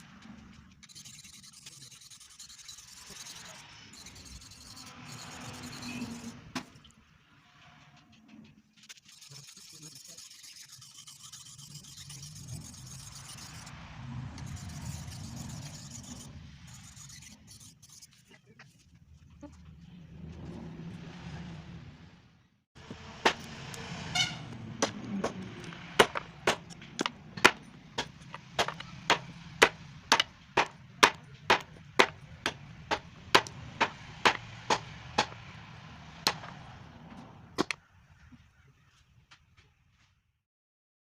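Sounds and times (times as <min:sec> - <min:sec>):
axe chopping wood: 0:23.2 - 0:23.5, 0:24.8 - 0:35.4, 0:36.3 - 0:36.6.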